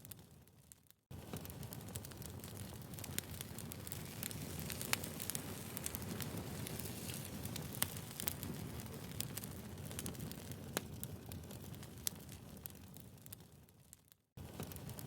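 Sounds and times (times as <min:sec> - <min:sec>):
firewood crackling and popping: 0:00.0 - 0:15.0
low rumble of flame: 0:01.1 - 0:15.0.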